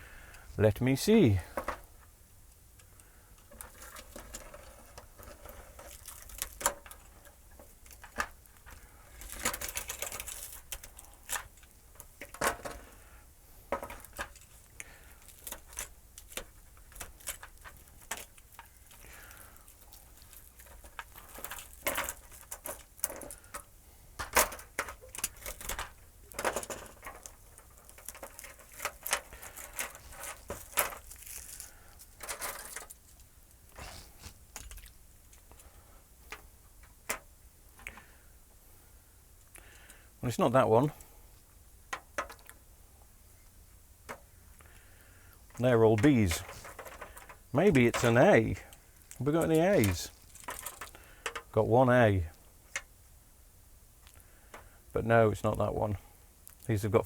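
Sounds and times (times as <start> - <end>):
rustling: 2.8 - 40.0, 43.3 - 51.6
plastic strips clicking and clattering: 13.7 - 33.0, 46.4 - 48.1, 49.8 - 51.5.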